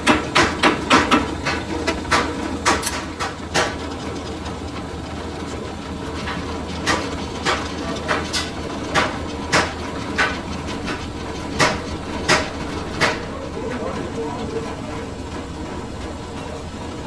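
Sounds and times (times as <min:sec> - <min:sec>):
machine humming: 0:00.0 - 0:17.0
hammer striking metal: 0:06.9 - 0:13.4.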